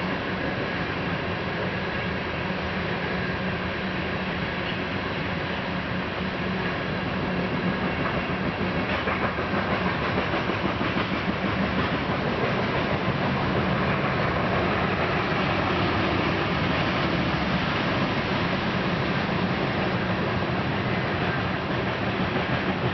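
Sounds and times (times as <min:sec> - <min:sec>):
freight train cars rolling past: 0:00.0 - 0:22.9
steel wheels clicking over rail joints: 0:07.6 - 0:18.1, 0:21.2 - 0:22.9.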